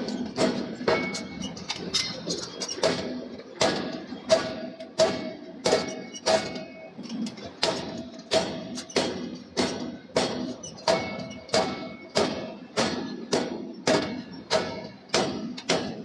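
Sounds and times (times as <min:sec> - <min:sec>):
forging hammer striking steel: 0:07.6 - 0:16.0.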